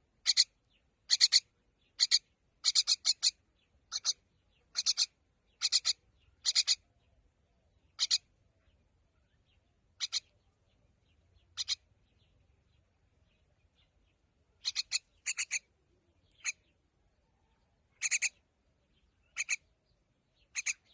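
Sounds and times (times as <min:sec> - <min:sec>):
bird giving harsh calls: 0:01.1 - 0:01.4, 0:02.0 - 0:06.8, 0:08.0 - 0:08.2, 0:10.0 - 0:10.3, 0:11.6 - 0:11.8, 0:14.6 - 0:15.7, 0:18.0 - 0:18.4, 0:19.3 - 0:19.6, 0:20.5 - 0:20.9.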